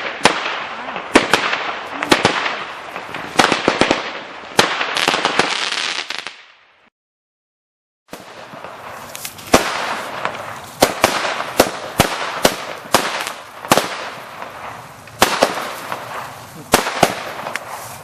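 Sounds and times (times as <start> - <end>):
fireworks crackling hiss: 0.0 - 6.4, 8.1 - 18.0
fireworks bangs: 0.0 - 6.9, 8.1 - 18.0.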